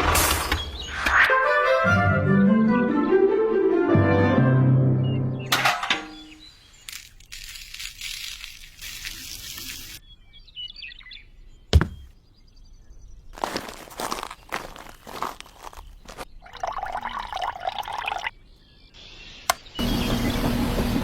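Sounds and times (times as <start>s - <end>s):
bird chirping: 5.0s - 20.6s
water pouring and splashing: 6.9s - 10.0s, 16.1s - 18.3s.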